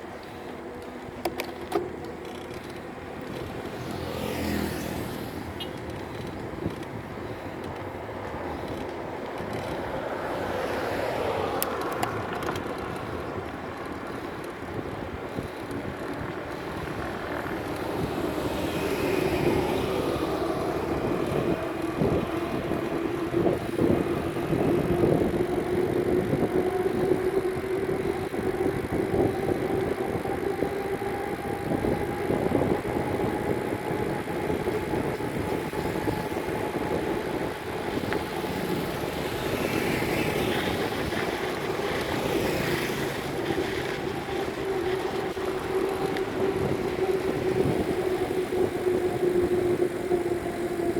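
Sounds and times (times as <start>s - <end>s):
motor engine drone: 0.0s - 50.9s
traffic noise: 0.0s - 50.9s
wind noise: 0.0s - 50.9s
higher drone: 10.1s - 50.9s.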